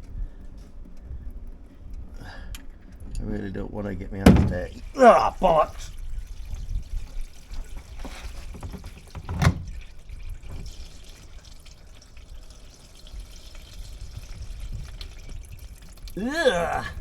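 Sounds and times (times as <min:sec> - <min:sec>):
oil pouring into drain pan: 0:04.3 - 0:16.8.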